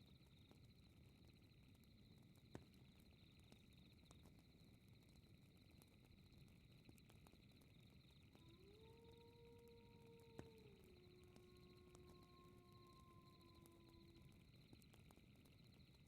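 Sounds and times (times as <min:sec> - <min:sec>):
night insects chirring: 0:00.1 - 0:16.0
wolf howling: 0:08.4 - 0:14.6.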